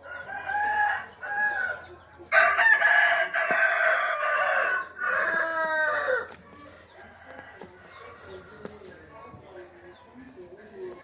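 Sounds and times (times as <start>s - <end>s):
rooster crowing: 0.0s - 6.3s.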